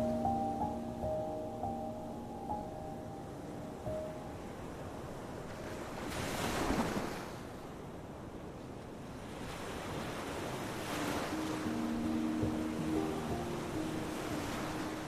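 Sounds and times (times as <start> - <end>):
sea waves crashing on beach: 4.4 - 15.0.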